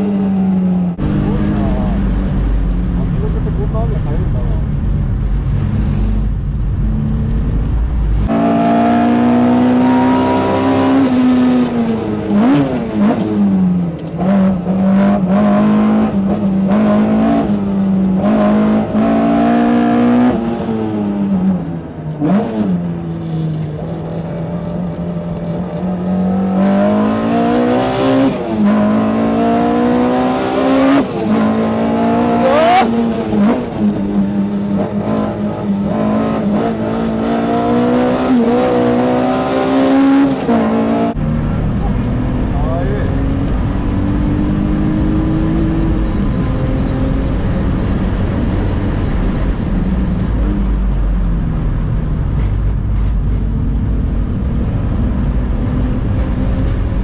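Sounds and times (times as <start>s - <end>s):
race car engine revving: 0.0s - 51.1s
low rumble: 0.8s - 8.5s, 41.1s - 57.0s.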